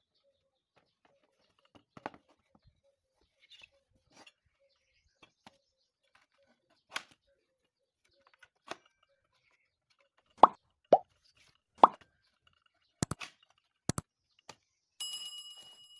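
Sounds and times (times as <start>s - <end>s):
pop sound effects: 10.4s - 11.0s, 11.8s - 12.0s
quick double clicks: 13.0s - 13.2s.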